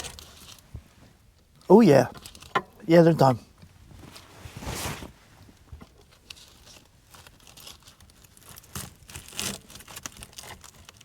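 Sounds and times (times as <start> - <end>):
wrapper crinkling and tearing: 6.2 - 11.0.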